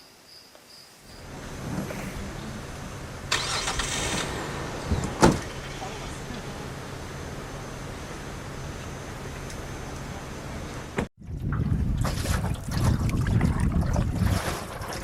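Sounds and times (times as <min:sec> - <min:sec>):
engine running: 0:01.2 - 0:11.1
brief hissing rush: 0:03.3 - 0:05.8.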